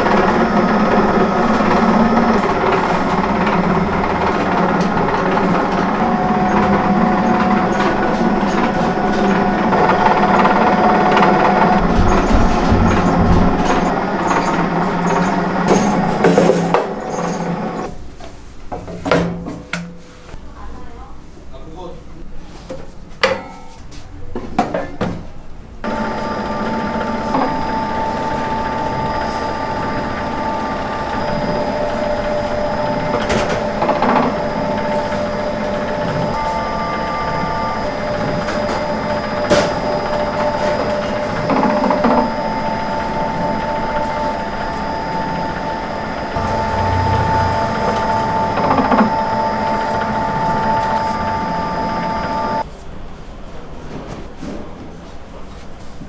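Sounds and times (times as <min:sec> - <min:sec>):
steady machine hum: 0:00.0 - 0:17.9, 0:25.8 - 0:52.6.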